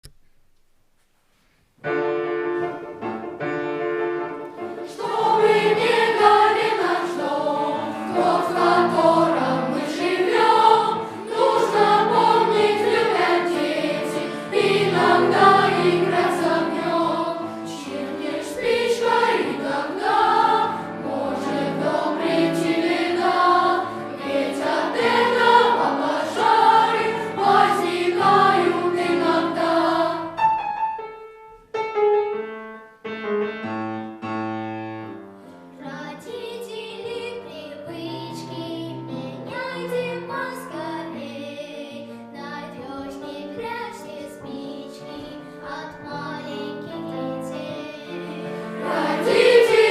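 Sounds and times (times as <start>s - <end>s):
piano accompaniment: 1.7s - 49.9s
boys' choir singing: 4.8s - 30.4s, 47.4s - 49.9s.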